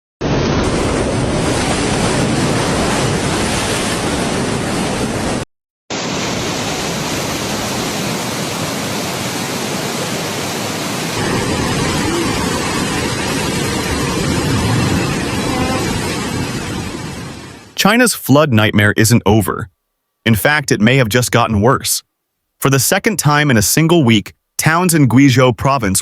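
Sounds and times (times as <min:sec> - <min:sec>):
rushing water: 0:00.2 - 0:17.8.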